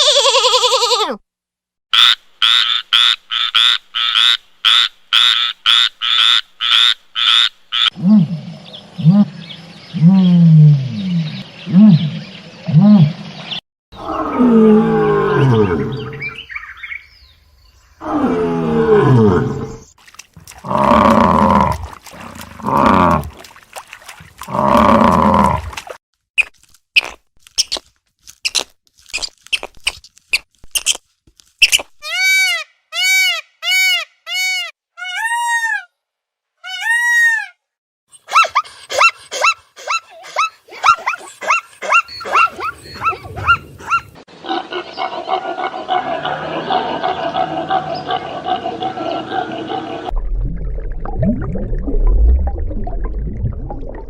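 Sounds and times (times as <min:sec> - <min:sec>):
deep roaring animal calls: 0:07.9 - 0:13.2, 0:14.0 - 0:16.6, 0:18.0 - 0:19.9, 0:20.6 - 0:23.4, 0:24.4 - 0:25.8
dense chorus of animal calls: 0:14.0 - 0:16.8, 0:42.0 - 0:50.1.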